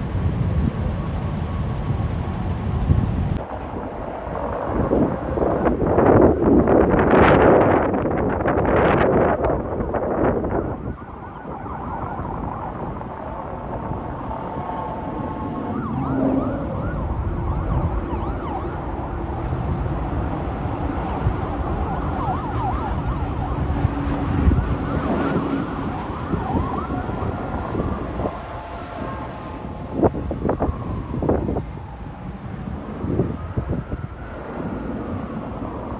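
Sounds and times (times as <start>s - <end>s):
emergency vehicle siren: 0.0s - 35.9s
road traffic noise: 0.0s - 35.9s.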